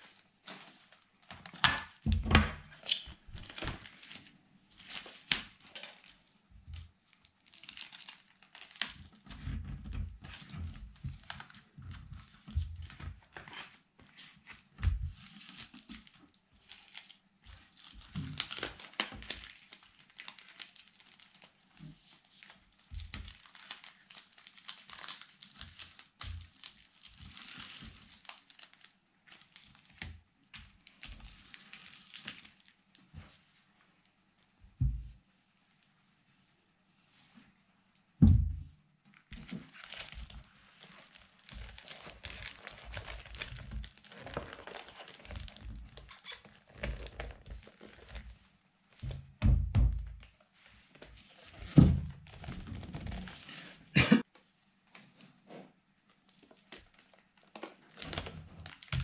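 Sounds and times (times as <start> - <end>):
cardboard box crinkling and rustling: 39.4 - 48.3, 56.4 - 59.0.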